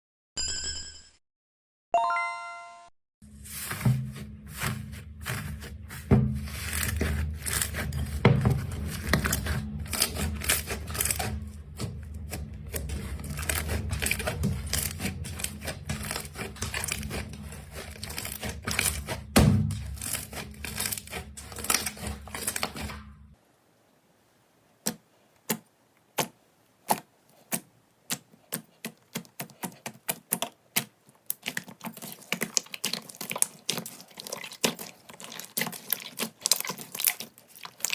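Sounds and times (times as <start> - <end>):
slime squeezed crackling and popping: 6.5 - 22.9, 31.2 - 37.9.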